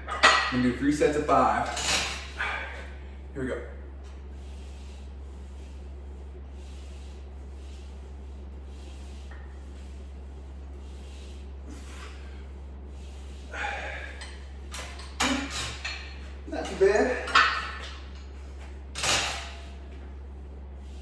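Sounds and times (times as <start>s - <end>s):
steady low hum: 0.0s - 21.0s
man breathing: 2.3s - 3.3s, 8.6s - 14.7s.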